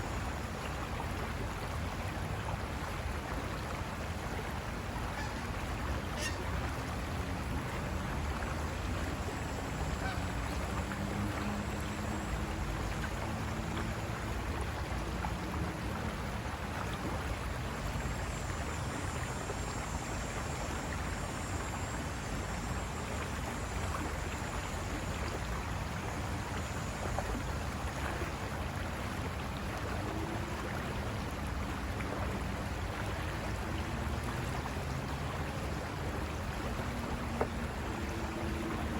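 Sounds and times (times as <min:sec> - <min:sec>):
faint low drawn-out calls: 0:04.2 - 0:22.0.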